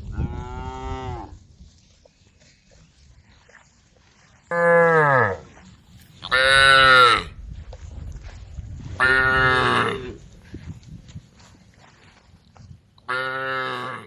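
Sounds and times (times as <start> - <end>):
cows mooing: 9.0 - 10.2, 13.1 - 14.0.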